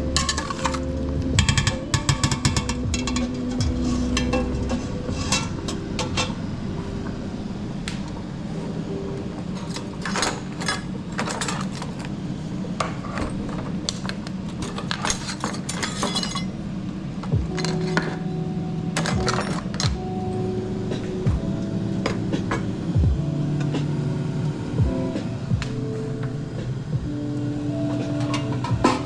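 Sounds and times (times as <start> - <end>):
dishes and utensils clinking: 0.0 - 6.4, 9.5 - 12.0, 14.6 - 16.6, 17.5 - 18.3, 19.0 - 20.0, 28.0 - 29.0.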